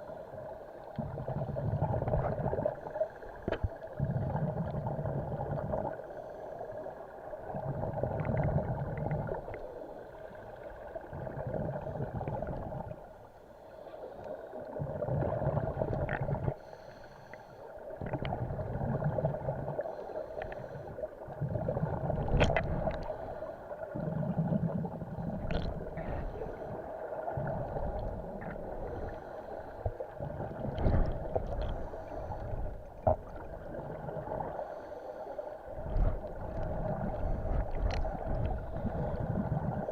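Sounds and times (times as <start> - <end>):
regulator bubbles gurgling: 0.0 - 13.2, 14.5 - 16.7, 17.6 - 34.8, 35.4 - 39.9
steady hum: 22.0 - 39.9.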